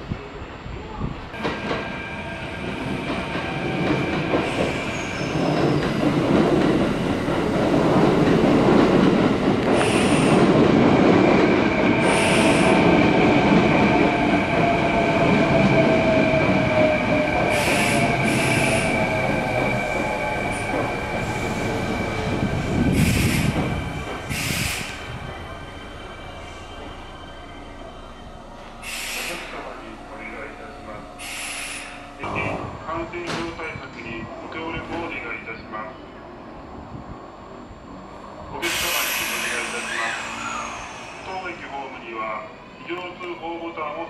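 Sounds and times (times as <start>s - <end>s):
train wheels and brakes squealing: 1.4s - 6.2s, 9.7s - 10.6s, 11.8s - 13.2s, 13.8s - 32.5s, 38.6s - 42.4s.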